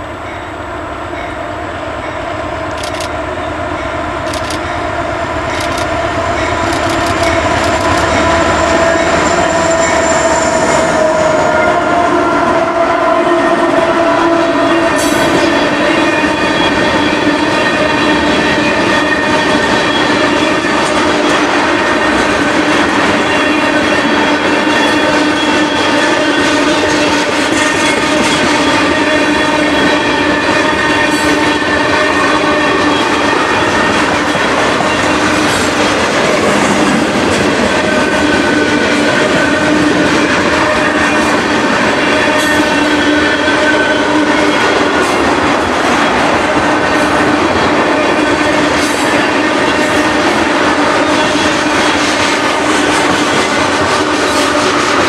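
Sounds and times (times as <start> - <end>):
train wheels rumbling on rails: 0.0 - 55.0
wheels clicking over rail joints: 6.7 - 8.2.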